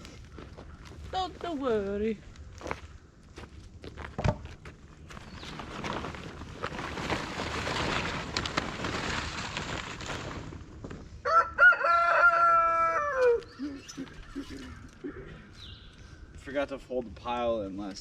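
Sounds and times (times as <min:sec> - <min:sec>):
rooster crowing: 0:11.2 - 0:13.6.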